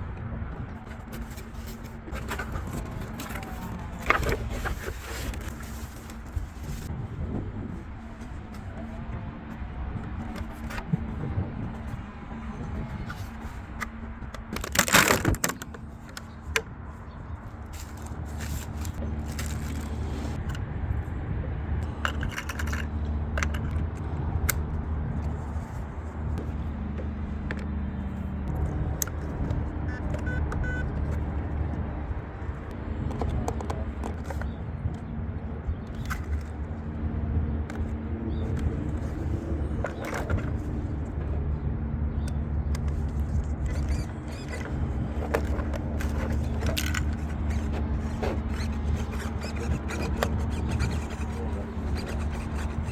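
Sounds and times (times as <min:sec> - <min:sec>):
packaging and parts handled: 0:00.8 - 0:06.9, 0:12.8 - 0:16.3, 0:17.7 - 0:20.4, 0:42.9 - 0:52.9.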